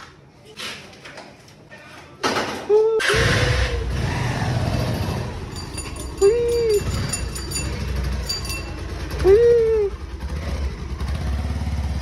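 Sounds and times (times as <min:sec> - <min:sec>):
motorcycle engine idling: 0:03.8 - 0:12.0.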